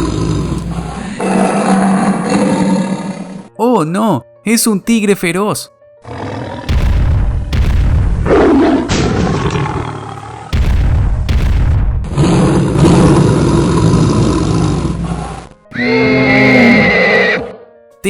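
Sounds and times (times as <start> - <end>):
cartoon tiger roaring: 0.0 - 3.5, 6.1 - 6.7, 8.3 - 10.6, 12.2 - 17.6.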